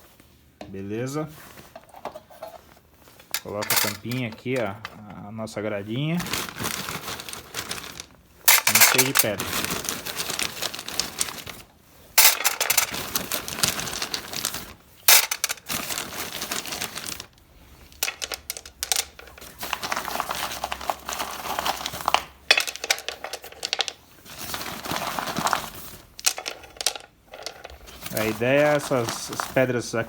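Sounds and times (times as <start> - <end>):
stones hitting metal grate: 8.5 - 9.4, 12.2 - 12.9.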